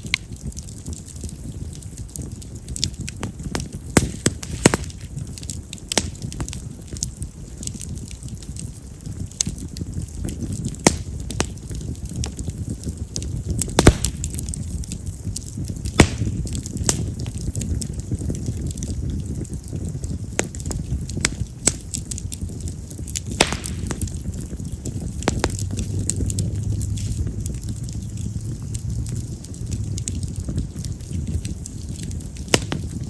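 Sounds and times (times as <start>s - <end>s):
fire crackling and popping: 0.0s - 33.0s.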